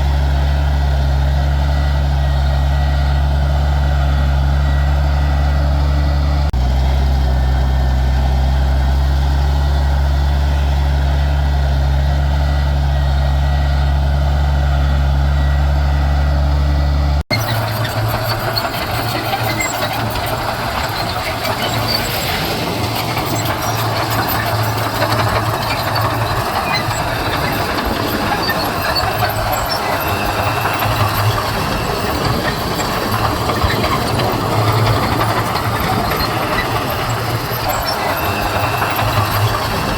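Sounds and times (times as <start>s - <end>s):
diesel machinery engine drone: 0.0s - 39.9s
rattling and clinking: 17.3s - 39.9s.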